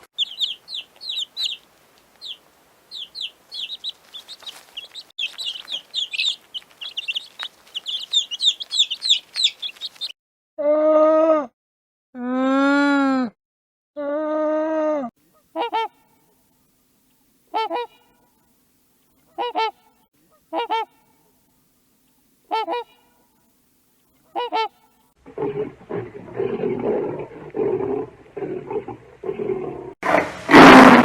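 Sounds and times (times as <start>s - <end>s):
drawn-out animal call: 0.0s - 10.1s
rough noisy animal sound: 0.0s - 10.1s, 25.2s - 31.0s
goose honking: 15.4s - 16.0s, 17.5s - 18.0s, 19.4s - 21.0s, 22.5s - 23.0s, 24.3s - 24.8s.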